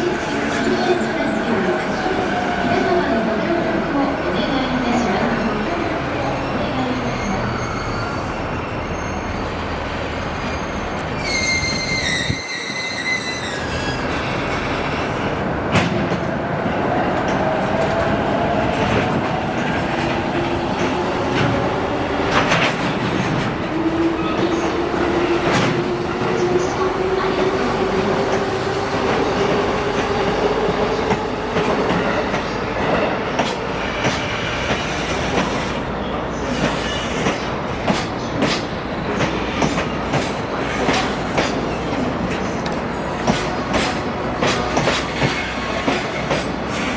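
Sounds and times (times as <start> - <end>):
high wheel squeal: 6.9 - 14.7.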